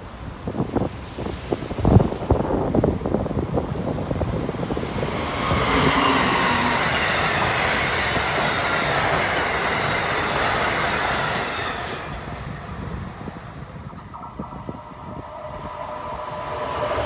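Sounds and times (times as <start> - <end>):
train passing at speed: 0.0 - 17.0
faint whine: 13.6 - 17.0.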